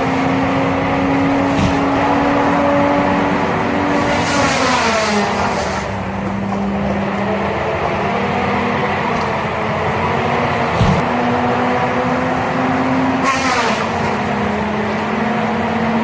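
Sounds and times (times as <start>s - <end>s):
heavy machine engine under load: 0.0s - 16.0s.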